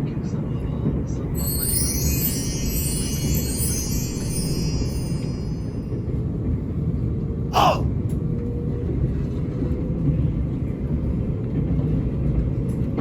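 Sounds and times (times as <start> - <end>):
sharp sound falling in pitch: 1.4 - 5.9.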